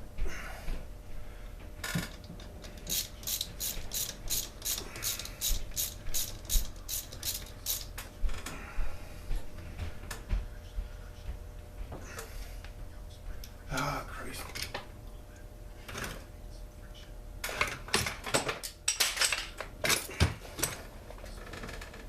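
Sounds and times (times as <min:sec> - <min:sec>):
ratchet wrench clicking: 0:02.8 - 0:07.9.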